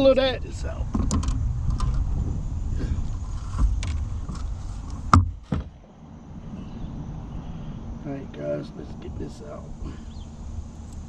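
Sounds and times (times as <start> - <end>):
low rumble: 0.0 - 11.0
sharp clicks and knocks: 0.9 - 2.1, 3.3 - 5.8.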